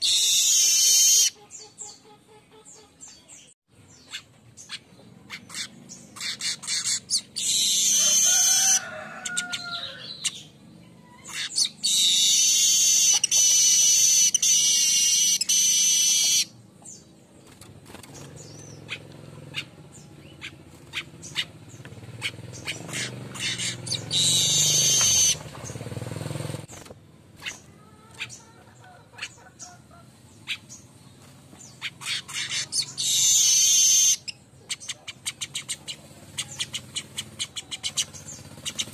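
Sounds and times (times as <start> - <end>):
bird buzzy song: 0.0 - 38.9
bird ticking chatter: 18.1 - 25.9, 31.7 - 38.9.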